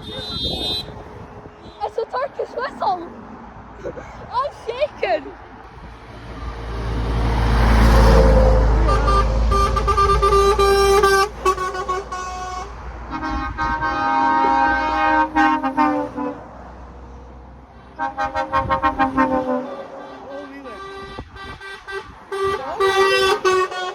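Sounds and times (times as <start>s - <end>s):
truck air horn chord blasts: 0.0s - 1.0s, 7.5s - 16.5s, 17.9s - 23.9s
truck driving past: 5.3s - 21.0s
low-pitched horn pulsing: 7.8s - 16.4s, 18.0s - 23.9s.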